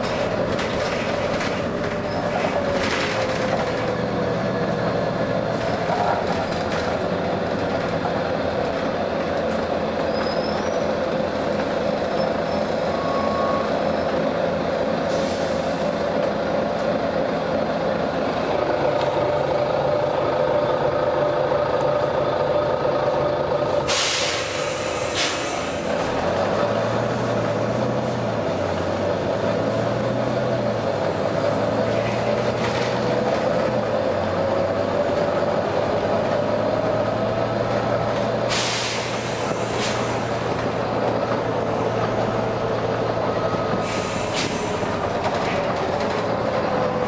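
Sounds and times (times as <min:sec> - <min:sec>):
bus drivetrain whine: 0:00.0 - 0:47.0
air brake hiss: 0:15.1 - 0:15.9, 0:23.8 - 0:26.0, 0:38.5 - 0:40.4, 0:43.8 - 0:44.9.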